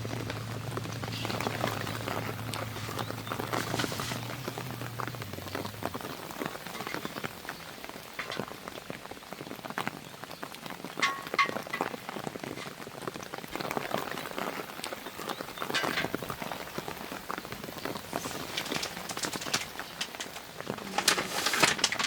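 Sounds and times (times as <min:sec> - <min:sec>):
rain drops tapping on a surface: 0:00.0 - 0:22.0
metal clink: 0:11.0 - 0:12.0.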